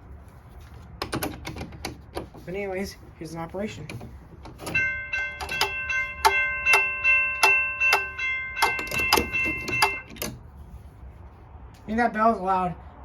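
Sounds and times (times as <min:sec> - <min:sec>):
railroad crossing bell ringing: 0:04.6 - 0:10.2.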